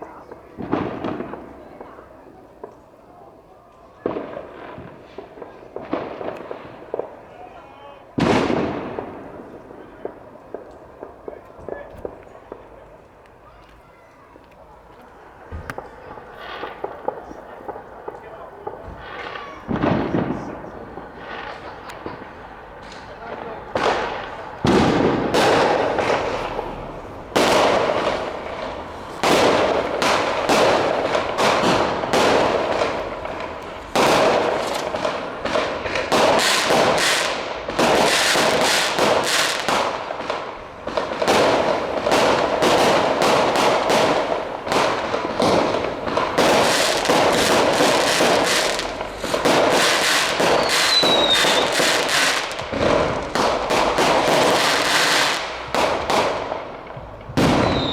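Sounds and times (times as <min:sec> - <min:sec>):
fireworks bangs and crackling: 0:00.0 - 0:57.9
firework whistle: 0:23.8 - 0:55.5, 0:57.4 - 0:57.9.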